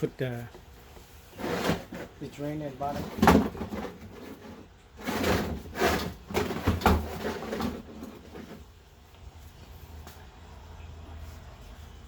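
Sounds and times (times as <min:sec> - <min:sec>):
drain pan scraping on floor: 0:01.3 - 0:02.2, 0:02.8 - 0:08.6.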